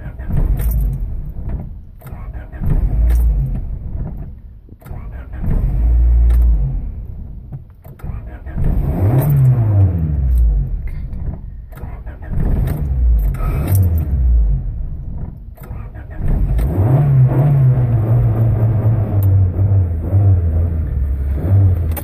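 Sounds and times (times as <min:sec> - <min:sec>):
car engine running unevenly: 0:00.0 - 0:22.0.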